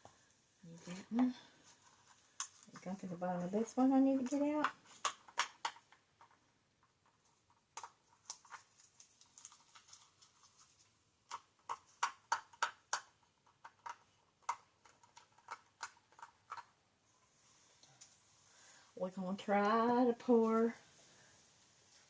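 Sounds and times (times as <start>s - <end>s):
plastic bottles and cups clicking: 4.2s - 10.2s, 11.2s - 16.8s.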